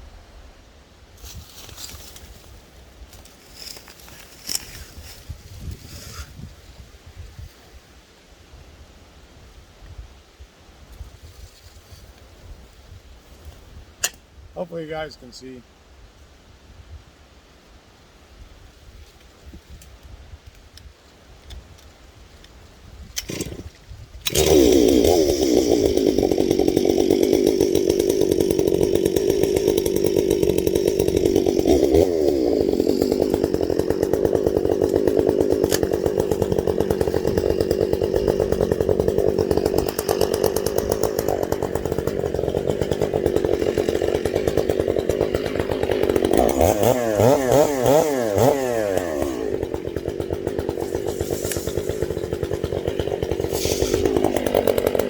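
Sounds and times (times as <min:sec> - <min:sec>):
chainsaw running and revving: 0:23.2 - 0:55.0.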